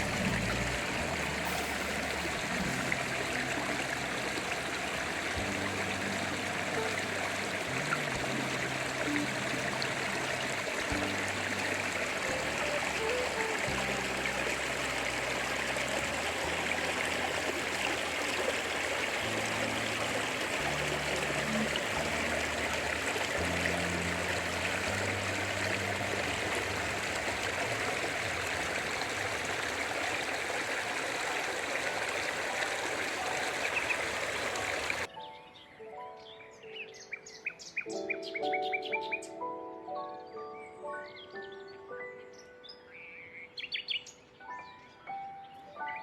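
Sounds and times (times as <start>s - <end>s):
stream of water flowing: 0.0s - 35.1s.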